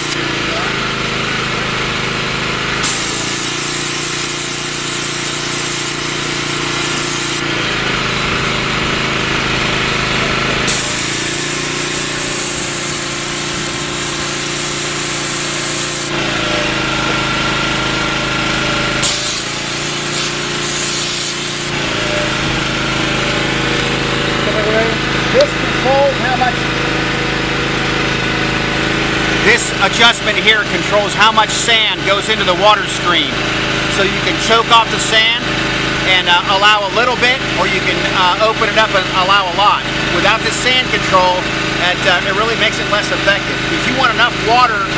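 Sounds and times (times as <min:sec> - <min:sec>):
sand jet hissing on concrete: 0:00.0 - 0:00.2, 0:02.8 - 0:07.5, 0:10.6 - 0:16.3, 0:19.0 - 0:24.1
pressure washer engine drone: 0:00.0 - 0:44.9.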